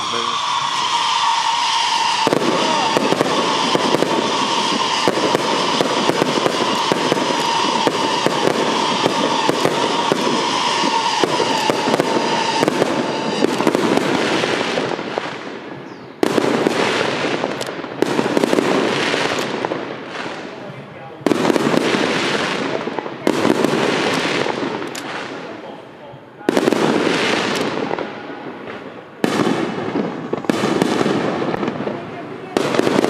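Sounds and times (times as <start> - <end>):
fireworks crackling and banging: 0.0 - 33.0.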